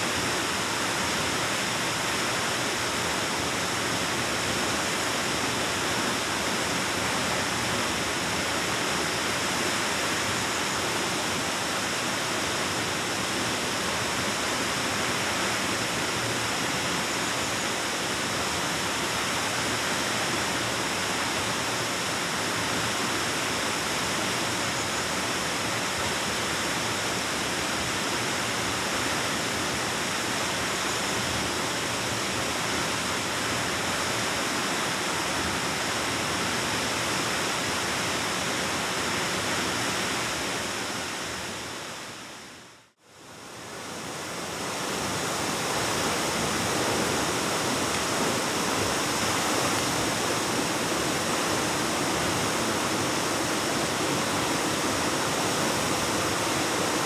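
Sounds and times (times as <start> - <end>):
waterfall rushing: 43.4 - 57.0.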